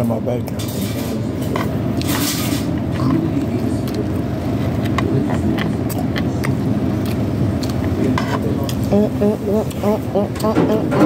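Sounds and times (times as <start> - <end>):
chewing clicks and smacks: 2.9 - 8.9.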